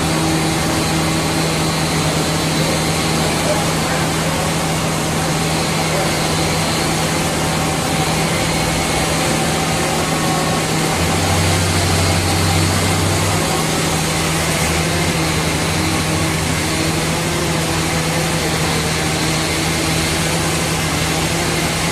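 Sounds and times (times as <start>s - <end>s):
deep drone: 0.0s - 21.9s
sawmill machinery running: 0.0s - 21.9s.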